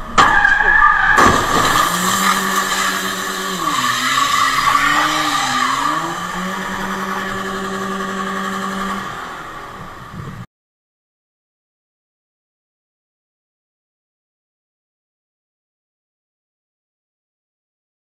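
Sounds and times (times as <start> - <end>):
road noise: 0.0 - 10.5
car engine running: 1.1 - 10.4.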